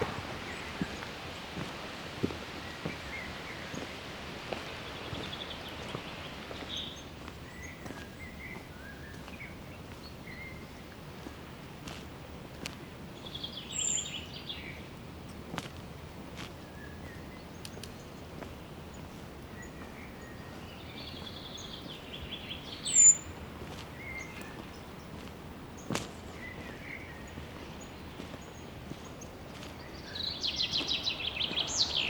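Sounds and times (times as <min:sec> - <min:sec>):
footsteps on a trail: 0:00.0 - 0:32.0
steady background hiss: 0:00.0 - 0:32.0
bird chirps: 0:19.6 - 0:23.3, 0:26.4 - 0:32.0.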